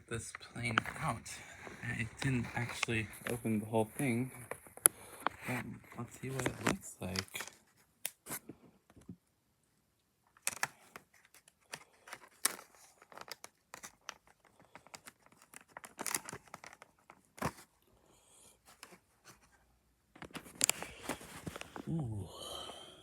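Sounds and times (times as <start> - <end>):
packaging rustling and tearing: 0.2 - 8.4, 10.4 - 17.7, 20.2 - 21.9.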